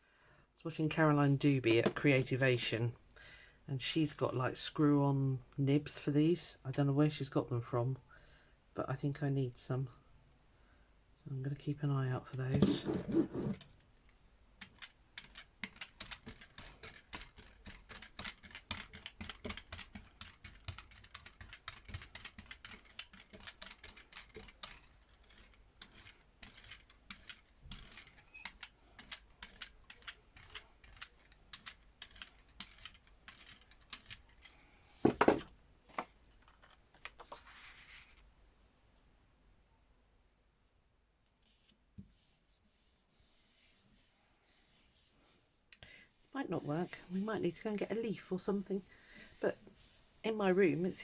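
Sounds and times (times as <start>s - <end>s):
brayer rolling sticky paint: 12.4s - 35.2s, 46.2s - 51.0s
brief rubbing: 12.6s - 13.6s.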